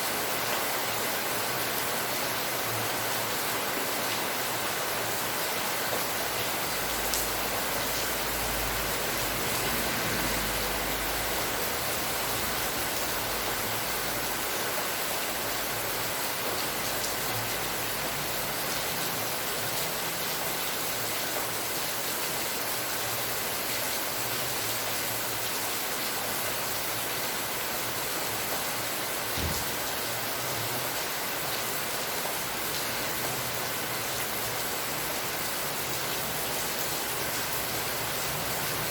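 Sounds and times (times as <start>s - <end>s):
steady rain falling: 0.0s - 38.9s
low thump: 29.4s - 29.8s.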